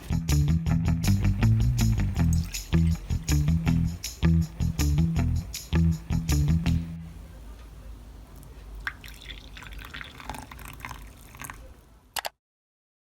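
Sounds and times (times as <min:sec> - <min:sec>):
background music: 0:00.0 - 0:07.1
low steady hiss: 0:01.1 - 0:12.2
rain dripping: 0:01.2 - 0:06.6, 0:08.4 - 0:11.7.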